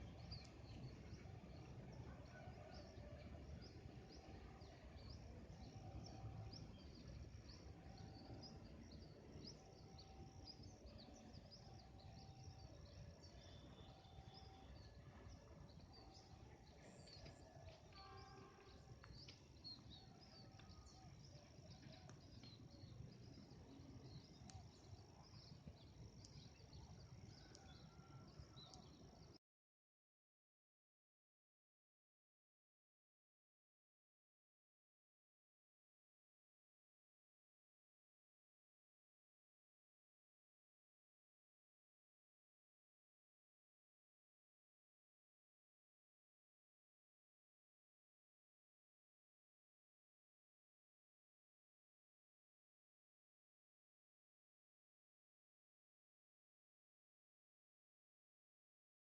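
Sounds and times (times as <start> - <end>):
small birds chirping: 3.4 - 29.4.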